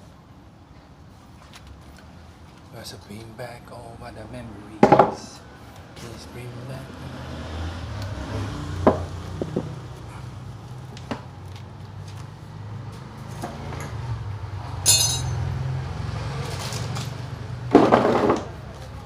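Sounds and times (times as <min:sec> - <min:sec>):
metal tools tapping and clinking: 0:14.8 - 0:15.5.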